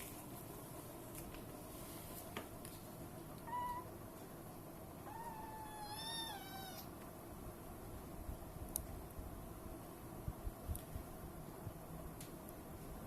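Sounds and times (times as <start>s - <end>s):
cat meowing: 3.4s - 3.9s, 5.0s - 6.9s.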